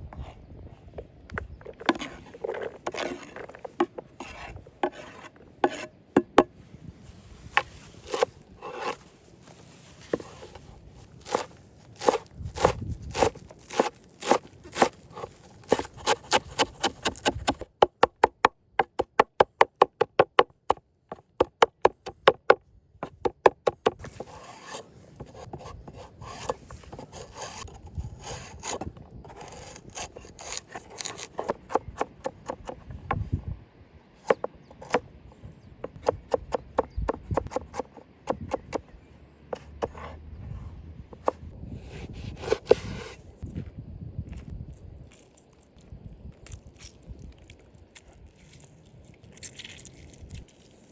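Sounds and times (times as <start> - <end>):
irregular scraping: 0.1 - 6.0, 6.6 - 17.6, 24.0 - 32.8, 39.5 - 43.4.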